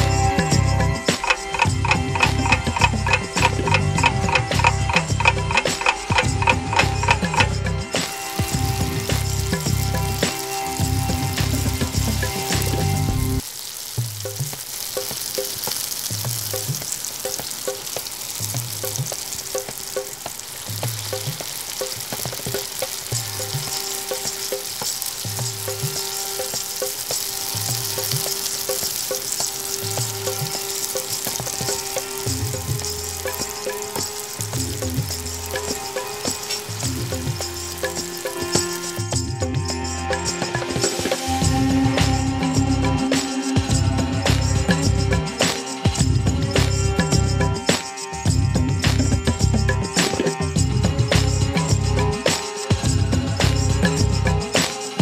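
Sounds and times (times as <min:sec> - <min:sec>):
background music with beat: 0:00.0 - 0:13.4, 0:14.0 - 0:55.0
oil sizzling and bubbling: 0:00.0 - 0:55.0.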